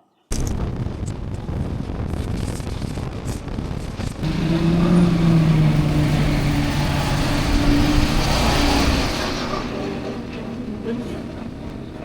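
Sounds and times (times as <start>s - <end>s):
road and wind noise: 0.5s - 12.0s
vehicle engine drone: 2.6s - 12.0s.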